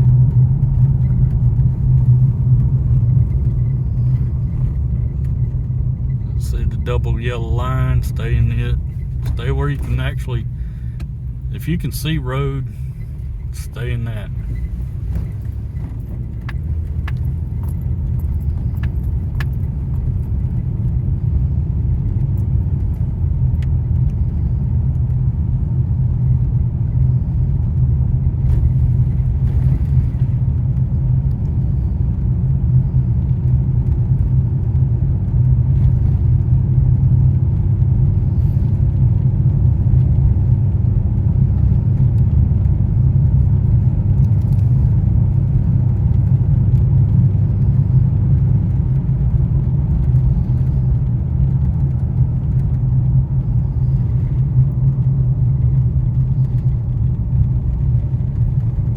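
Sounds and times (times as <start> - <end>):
tyres and engine rumble: 0.0 - 58.9.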